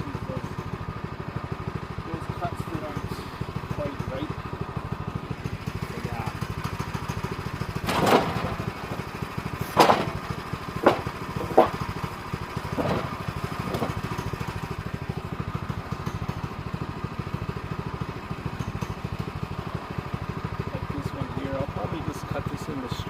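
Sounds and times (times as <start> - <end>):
small engine idling: 0.0 - 23.0
sharp knocks: 7.8 - 12.1, 12.7 - 14.3.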